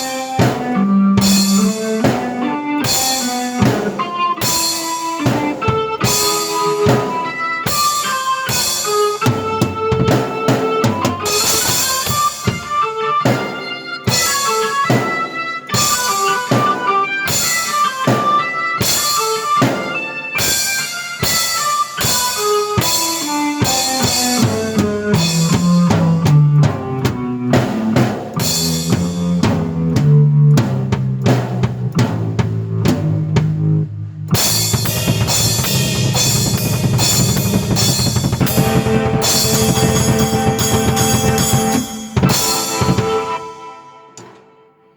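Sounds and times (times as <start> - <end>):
keyboard playing: 0.0 - 44.9
bass drum: 23.8 - 43.3.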